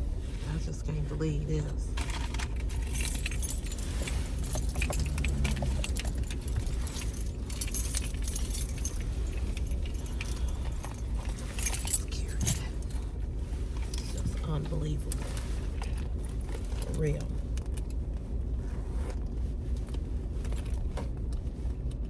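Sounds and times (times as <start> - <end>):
vehicle rumble: 0.0 - 22.0
keys jangling: 2.1 - 13.0.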